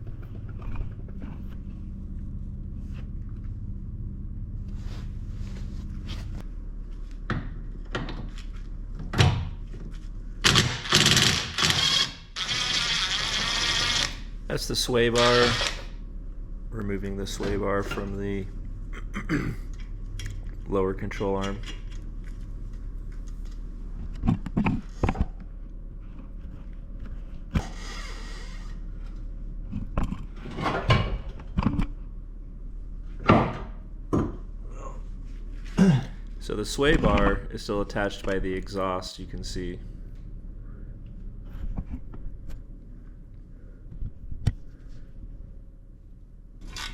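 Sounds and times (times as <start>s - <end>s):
steady low hum: 0.0s - 46.9s
power tool running: 10.4s - 14.3s, 15.1s - 15.9s
rasping scrape: 27.6s - 28.8s.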